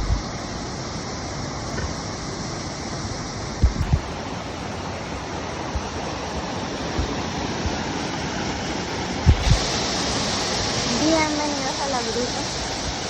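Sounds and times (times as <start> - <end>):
rushing water: 0.0 - 13.0
soft thumps on microphone: 3.6 - 4.1, 9.3 - 9.7.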